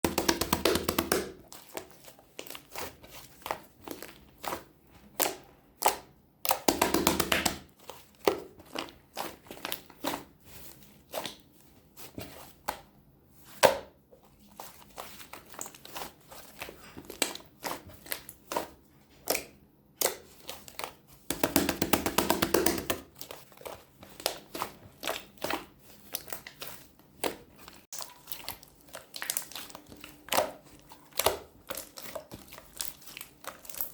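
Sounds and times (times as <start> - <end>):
slime clicking and popping: 0.0 - 1.4, 5.2 - 7.7
slime squishing wetly: 0.0 - 33.9.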